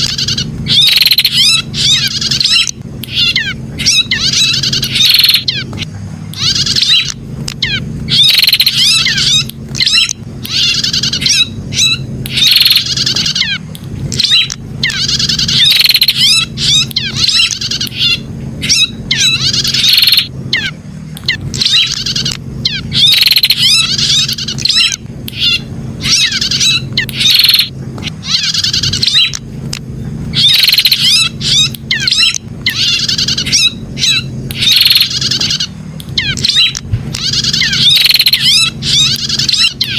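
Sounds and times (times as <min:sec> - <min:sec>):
bird high-pitched chirps and trills: 0:00.0 - 0:39.9
steady low hum: 0:00.0 - 0:39.9.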